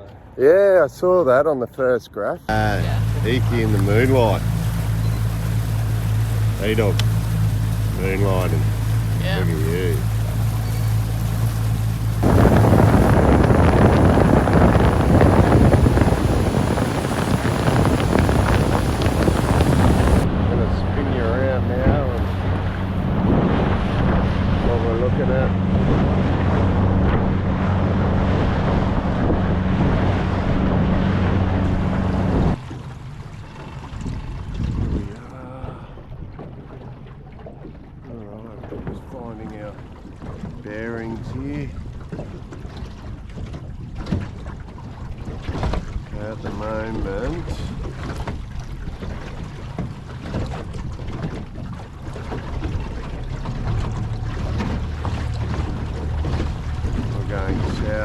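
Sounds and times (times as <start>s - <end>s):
steady low rumble: 2.4s - 36.3s, 51.9s - 58.0s
boat engine running: 2.4s - 58.0s
wind on microphone: 2.5s - 32.7s, 33.9s - 36.8s, 42.0s - 58.0s
water wash: 2.5s - 58.0s.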